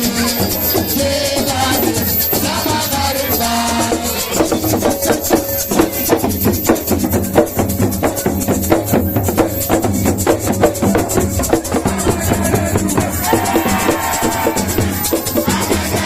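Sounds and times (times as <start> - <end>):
fast drumming: 0.0 - 16.0
live band music: 0.0 - 16.0
shaker: 0.0 - 16.0
held higher note: 10.9 - 16.0.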